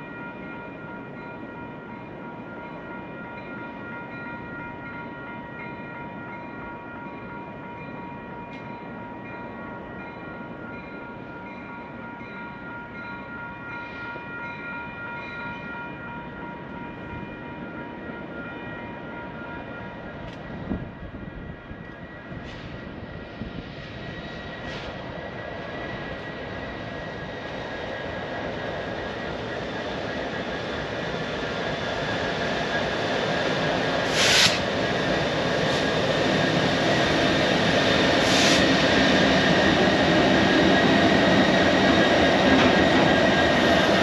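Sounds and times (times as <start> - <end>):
train wheels rumbling on rail: 19.6 - 44.0.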